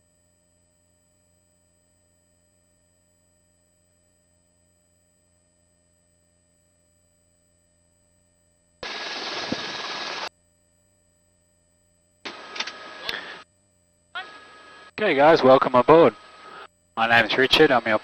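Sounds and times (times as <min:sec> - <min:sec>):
intercom hissing noise: 0:08.8 - 0:10.3, 0:12.3 - 0:13.4, 0:14.2 - 0:18.0.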